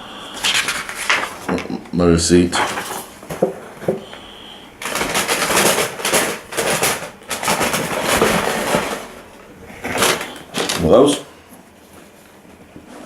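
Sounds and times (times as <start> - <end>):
paper packaging rustling: 0.3 - 12.4.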